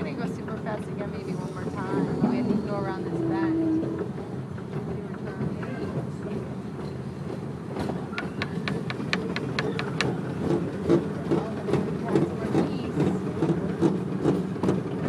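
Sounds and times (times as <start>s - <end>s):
steam train rumble: 0.0s - 15.0s.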